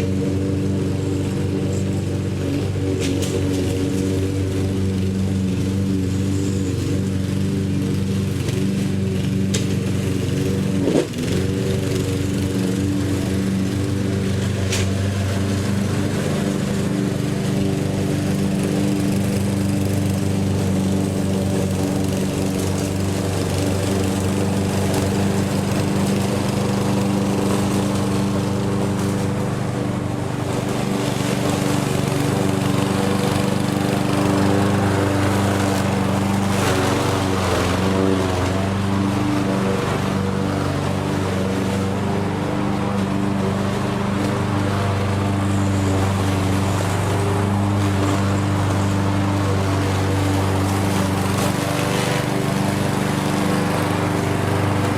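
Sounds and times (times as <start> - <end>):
lawn mower engine running: 0.0 - 54.9.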